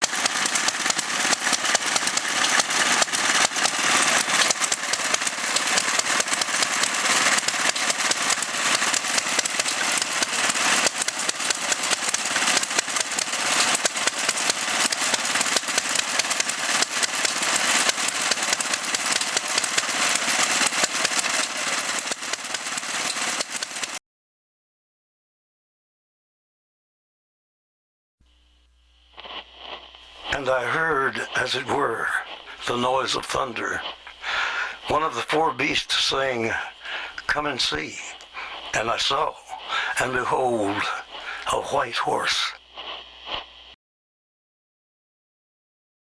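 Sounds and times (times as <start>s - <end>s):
stationary engine clatter: 0.0s - 24.0s, 30.2s - 41.8s.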